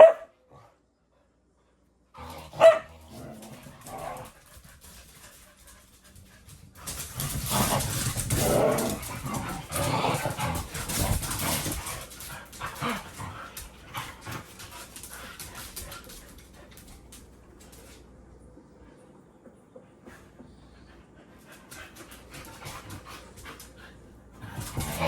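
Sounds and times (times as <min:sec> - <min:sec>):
dogs growling and barking: 0:02.1 - 0:05.5, 0:06.8 - 0:16.8, 0:21.8 - 0:25.0.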